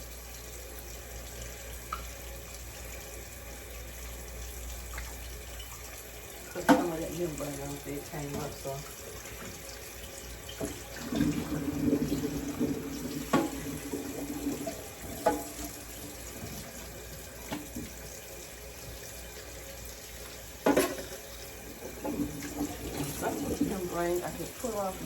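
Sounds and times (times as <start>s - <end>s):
tap running into sink: 6.5s - 19.5s, 20.2s - 24.9s.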